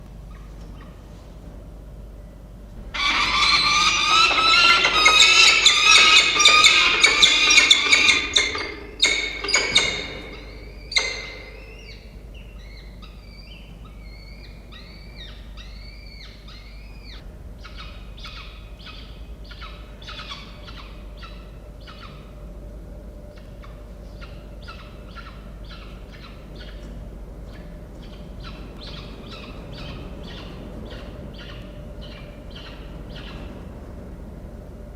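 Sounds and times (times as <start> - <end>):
falcons calling: 2.8 - 12.1.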